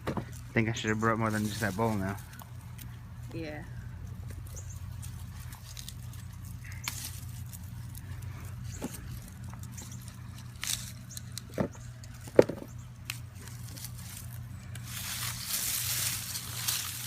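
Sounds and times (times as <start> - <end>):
rustling of vines: 0.0 - 17.0
hands scraping through soil: 13.2 - 17.0.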